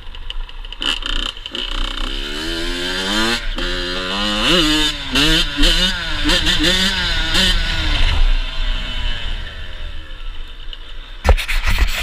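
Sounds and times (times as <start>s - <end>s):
dirt bike engine revving: 0.8s - 10.0s.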